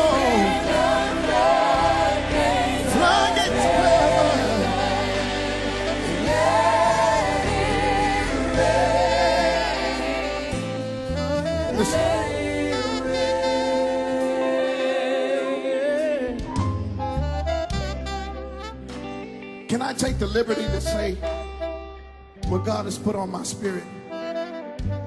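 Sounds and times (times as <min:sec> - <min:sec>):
voices singing gospel: 0:00.0 - 0:17.2
low musical accompaniment: 0:00.0 - 0:25.0.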